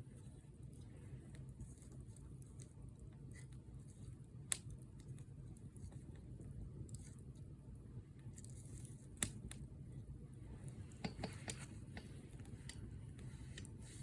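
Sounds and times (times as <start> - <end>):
fire crackling and popping: 8.2 - 9.7.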